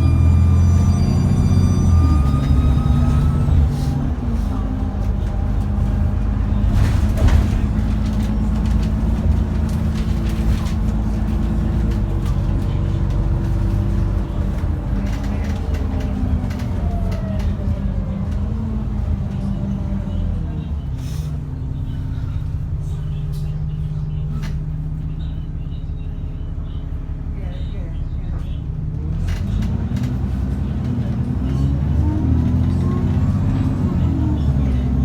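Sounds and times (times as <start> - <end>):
turbo whine: 0.0 - 4.1
bus diesel engine running: 0.0 - 35.0.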